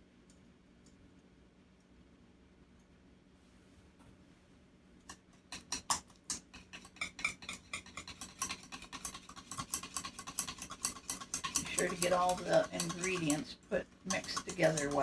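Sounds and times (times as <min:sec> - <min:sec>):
utensil stirring dressing in bowl: 0:05.1 - 0:15.0.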